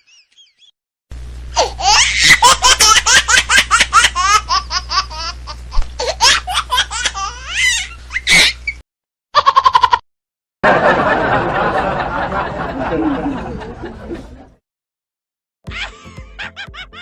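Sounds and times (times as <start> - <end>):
steady low hum: 1.1 - 8.8
person laughing hard: 10.7 - 14.4, 15.7 - 17.0.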